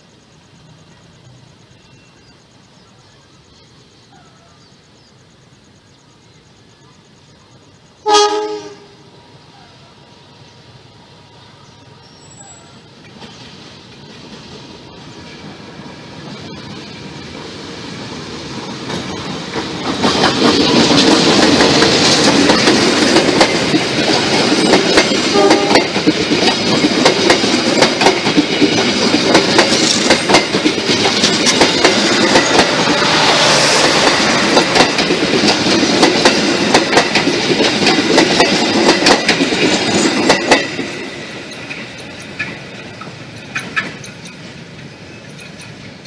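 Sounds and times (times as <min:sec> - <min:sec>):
passenger train passing: 0:00.0 - 0:46.0
wheels clacking over rail joints: 0:12.1 - 0:46.0.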